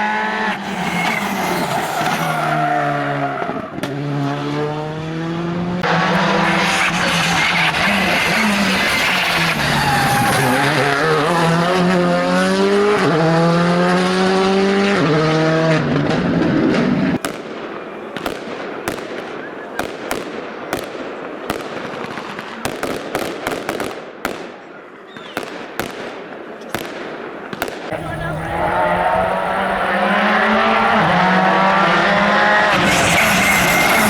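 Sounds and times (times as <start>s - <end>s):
rally car engine at full throttle: 0.0s - 17.2s, 27.9s - 34.0s.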